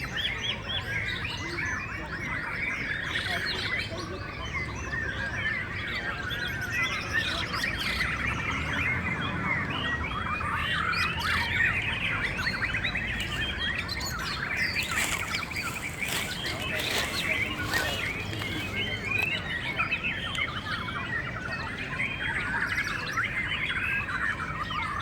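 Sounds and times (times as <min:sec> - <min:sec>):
birds singing: 0:00.0 - 0:25.0.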